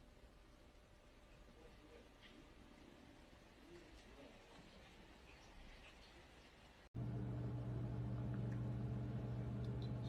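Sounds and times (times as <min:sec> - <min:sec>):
faint background hiss: 0:00.0 - 0:10.0
steady low hum: 0:07.0 - 0:10.0.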